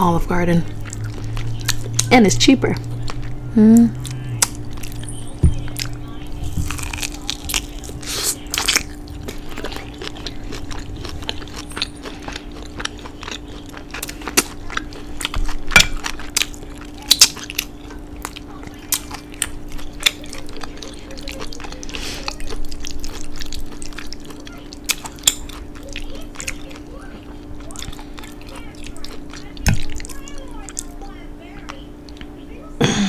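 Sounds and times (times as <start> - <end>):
faint steady hum: 0.0 - 33.0
person chewing rib: 0.5 - 32.4.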